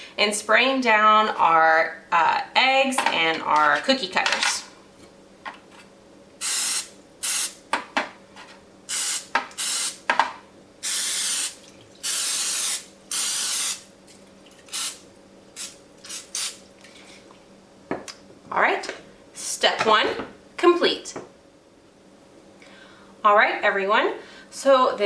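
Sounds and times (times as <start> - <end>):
aerosol spray hissing: 6.4 - 7.6, 8.9 - 10.0, 10.8 - 13.8, 14.7 - 15.0.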